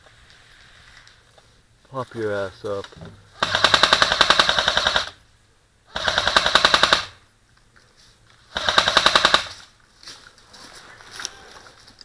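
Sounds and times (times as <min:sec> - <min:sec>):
airsoft gun full-auto bursts: 0:03.4 - 0:05.2, 0:05.9 - 0:07.2, 0:08.5 - 0:09.6.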